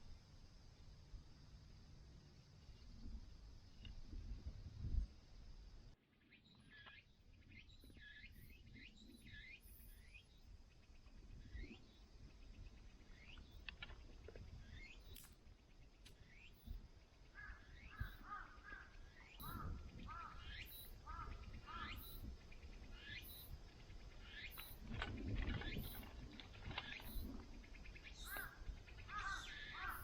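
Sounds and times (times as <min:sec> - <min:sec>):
birds chirping: 0:15.8 - 0:30.0.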